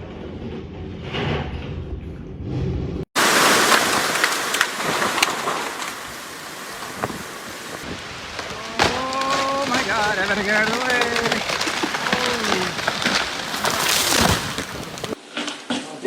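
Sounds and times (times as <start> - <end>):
hiss of driving rain: 3.2 - 15.2
raindrops tapping nearby: 3.2 - 15.2
wind buffeting microphone: 6.0 - 8.7.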